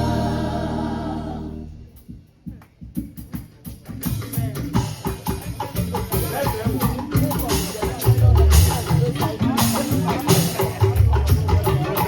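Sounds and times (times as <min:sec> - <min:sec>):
choir singing: 0:00.0 - 0:01.8
drums beating: 0:00.0 - 0:12.0.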